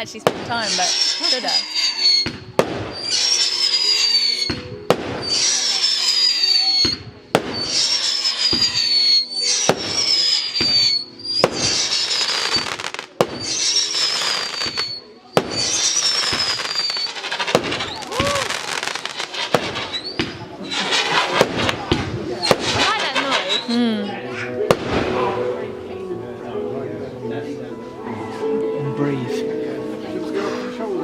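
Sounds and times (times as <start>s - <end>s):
fireworks bangs: 0.0s - 23.7s, 24.7s - 25.5s
firework crackling hiss: 0.0s - 23.8s
firework whistle sliding down: 0.7s - 21.4s.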